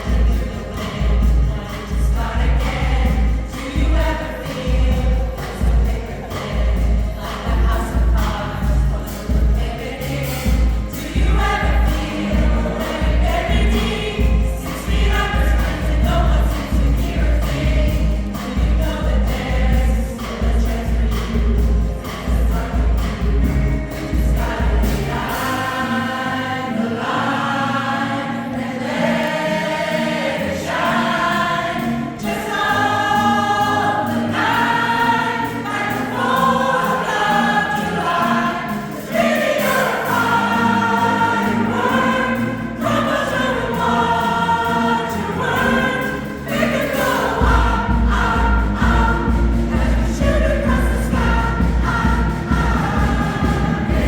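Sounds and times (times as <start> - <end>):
heavy low beat: 0.0 - 25.5, 43.8 - 54.0
choir singing pop song: 0.0 - 54.0.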